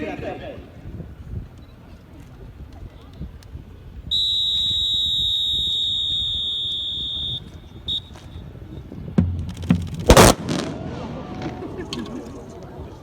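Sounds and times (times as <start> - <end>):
high-pitched whistle blasts: 4.1 - 8.5.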